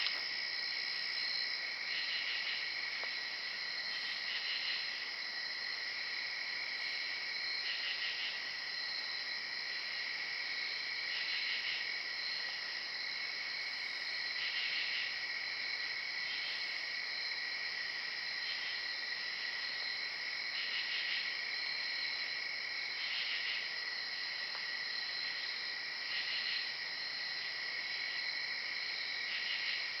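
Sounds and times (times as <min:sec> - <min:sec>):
crickets trilling: 0:00.0 - 0:30.0.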